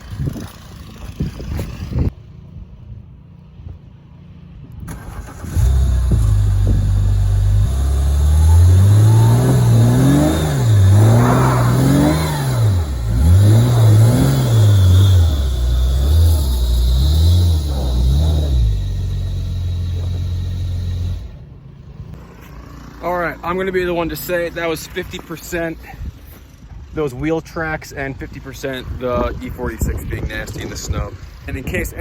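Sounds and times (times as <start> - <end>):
car engine revving hard: 5.2 - 21.3.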